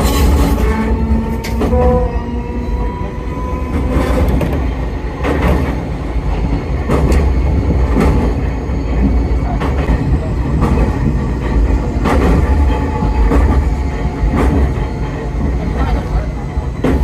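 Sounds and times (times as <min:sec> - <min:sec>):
train rumble in tunnel: 0:00.0 - 0:17.0
wheels clacking over rails: 0:03.5 - 0:17.0.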